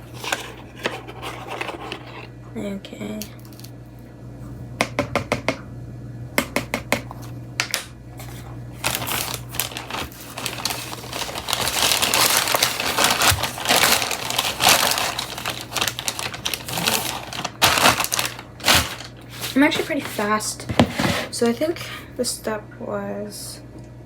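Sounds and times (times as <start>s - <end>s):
crinkling and rustling: 0.0s - 2.3s, 8.2s - 21.6s.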